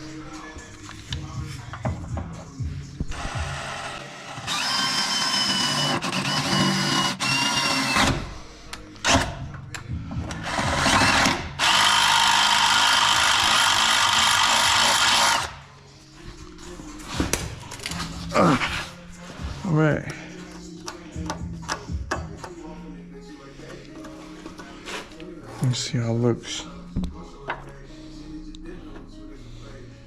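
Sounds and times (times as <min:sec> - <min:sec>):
power drill whining: 0:03.1 - 0:08.3, 0:10.4 - 0:15.6.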